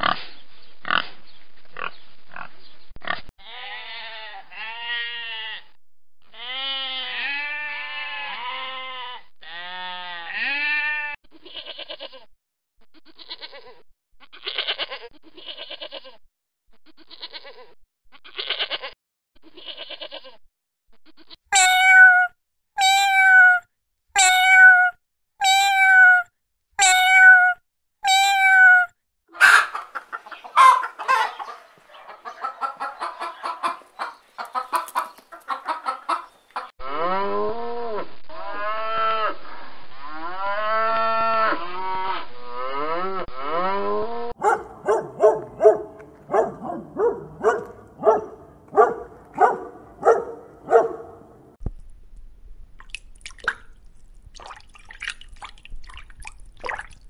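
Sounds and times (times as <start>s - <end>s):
calf mooing: 6.4s - 11.2s, 40.4s - 51.5s
high farm animal calls: 21.6s - 23.6s, 26.8s - 37.3s, 40.6s - 51.5s.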